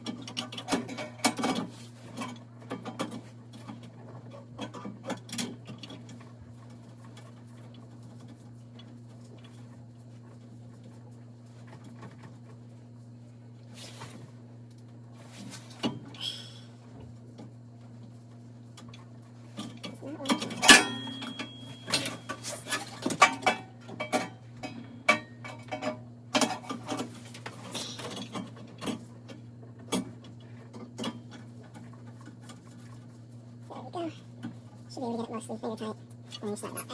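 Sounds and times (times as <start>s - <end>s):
steady low hum: 7.8s - 29.4s.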